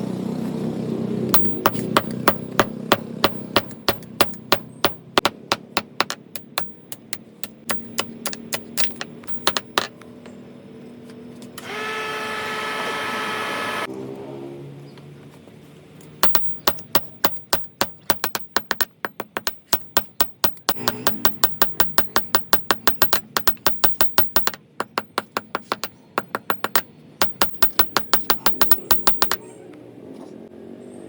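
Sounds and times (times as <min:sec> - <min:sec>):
hammer striking metal: 0:01.3 - 0:10.0, 0:16.2 - 0:29.5.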